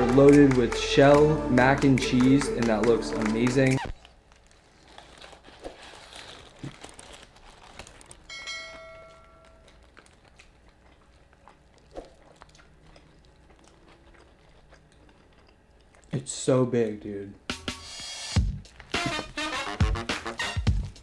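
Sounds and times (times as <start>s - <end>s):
crunching of fried crust: 4.0s - 8.4s, 9.4s - 16.2s
wet chewing: 9.5s - 16.2s.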